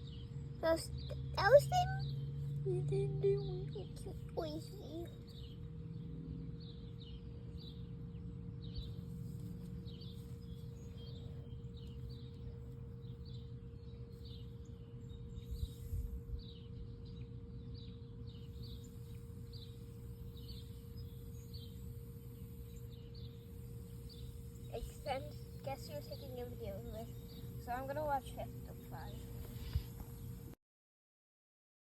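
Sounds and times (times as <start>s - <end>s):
baby bird chirping: 0.0s - 5.6s, 14.1s - 17.2s, 18.2s - 30.2s
faint steady hum: 0.0s - 30.6s.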